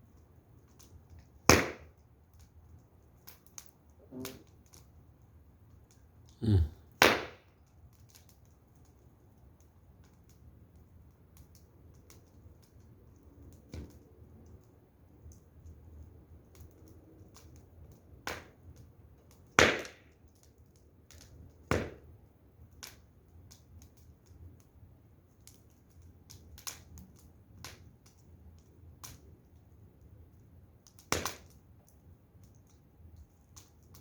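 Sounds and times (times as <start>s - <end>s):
wood fire crackling: 0.0s - 34.0s
loud fire pops: 0.8s - 2.0s, 6.9s - 8.4s, 18.2s - 20.4s, 21.0s - 22.1s, 30.9s - 32.0s.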